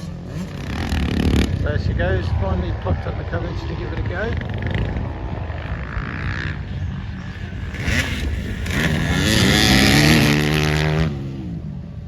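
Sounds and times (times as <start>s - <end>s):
motocross bike engine revving: 0.0s - 1.8s, 4.0s - 11.6s.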